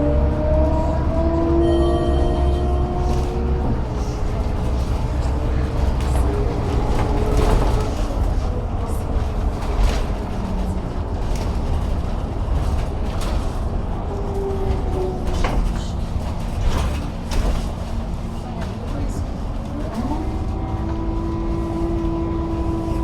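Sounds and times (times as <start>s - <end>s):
bus engine drone: 0.0s - 23.0s.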